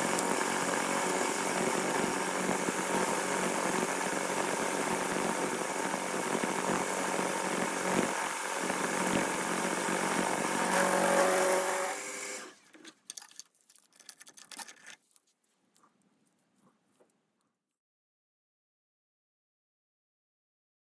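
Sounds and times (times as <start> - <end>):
lathe running: 0.0 - 12.5.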